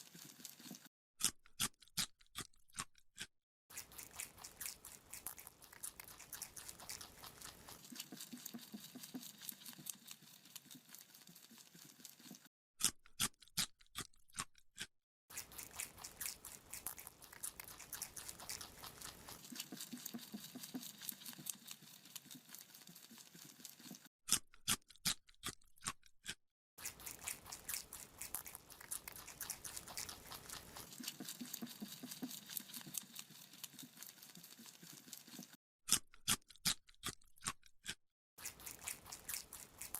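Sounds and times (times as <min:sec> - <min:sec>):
rabbit chewing carrot: 0:00.0 - 0:39.9.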